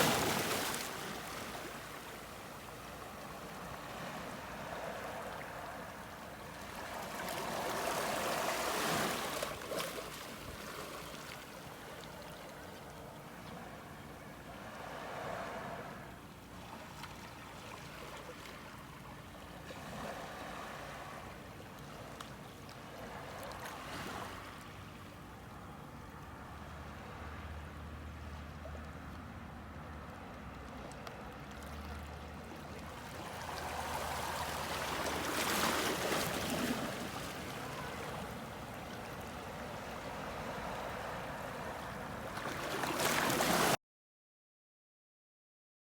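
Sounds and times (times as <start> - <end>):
sea waves washing in: 0.0 - 21.6, 31.8 - 43.8.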